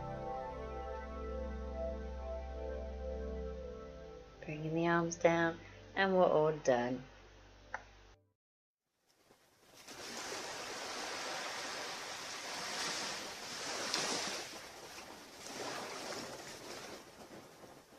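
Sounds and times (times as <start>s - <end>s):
surf breaking on a beach: 9.8s - 17.9s.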